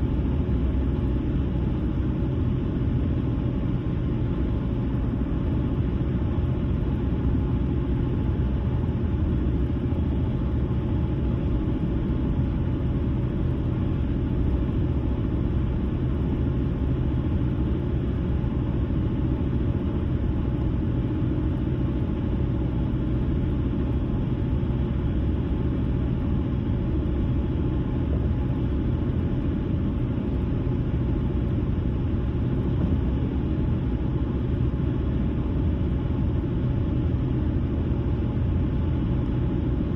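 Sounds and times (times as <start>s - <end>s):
car engine noise: 23.4s - 36.3s.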